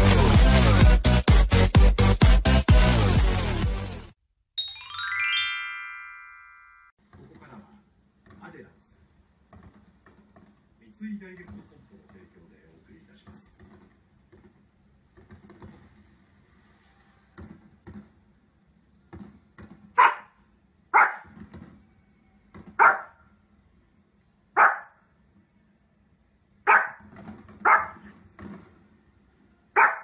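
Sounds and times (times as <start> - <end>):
dog barking: 20.0 - 21.4, 22.8 - 23.2, 24.6 - 25.0, 26.6 - 28.1, 29.7 - 30.0.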